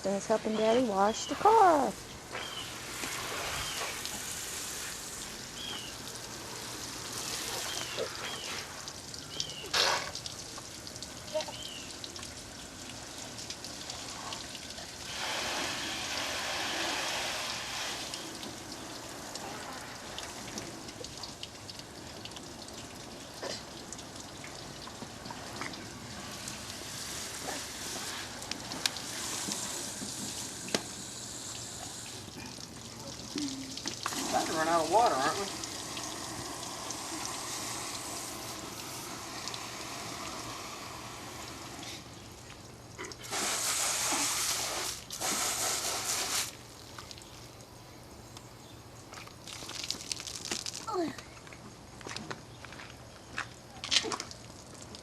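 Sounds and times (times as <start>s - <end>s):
water trickling and splashing: 0.0s - 55.0s.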